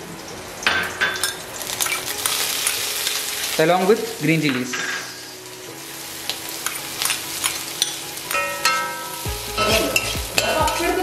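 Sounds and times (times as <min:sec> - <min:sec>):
garlic and chillies sizzling in oil: 0:00.0 - 0:11.0
steel spoon scraping pan: 0:06.6 - 0:11.0.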